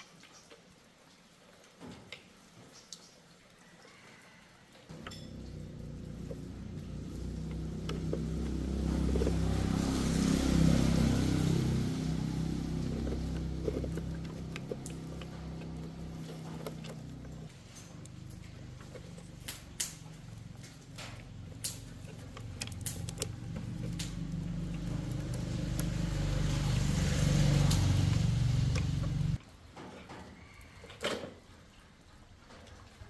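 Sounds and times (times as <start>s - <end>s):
motor vehicle running: 4.9s - 29.4s.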